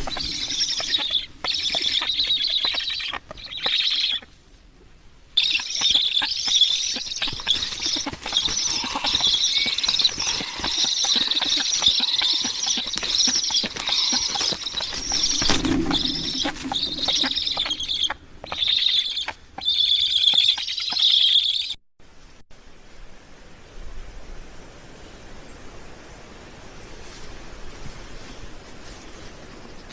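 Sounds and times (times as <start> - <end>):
birds chattering high-pitched: 0.0 - 4.2, 5.4 - 21.8.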